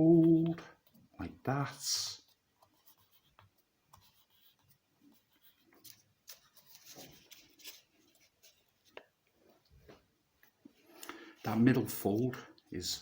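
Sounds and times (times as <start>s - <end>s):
paper rustling and crinkling: 5.5s - 9.0s.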